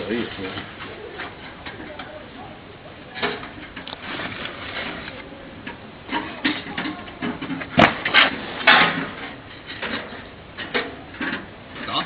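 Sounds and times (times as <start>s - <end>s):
loud sharp metal clanks: 7.7s - 11.4s.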